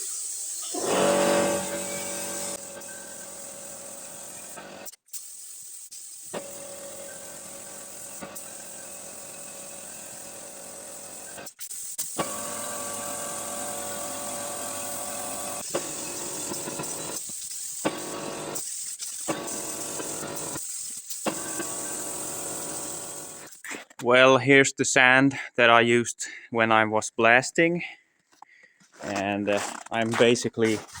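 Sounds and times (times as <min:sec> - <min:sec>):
paint spray gun hissing: 0:00.0 - 0:23.8
air compressor humming: 0:00.6 - 0:04.9, 0:05.9 - 0:23.6.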